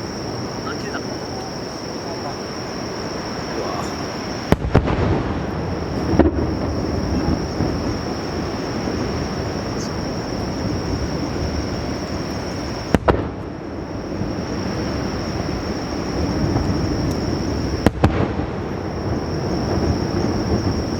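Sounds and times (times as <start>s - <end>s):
fireworks booming: 0.0s - 20.9s
sharp fireworks cracks: 0.0s - 20.9s.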